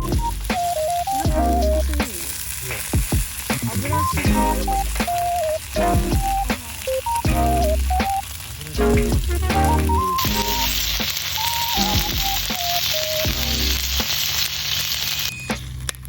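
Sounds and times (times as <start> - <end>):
electronic melody with bass: 0.0 - 2.0, 3.8 - 14.0
food sizzling as it fries: 0.0 - 15.9.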